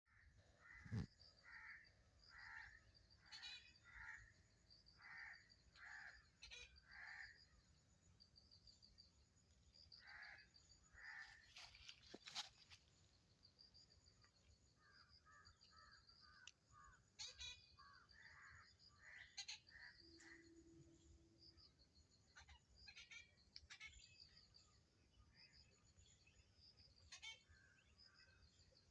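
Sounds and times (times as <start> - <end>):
high thin bird chirps: 0.8 - 1.1.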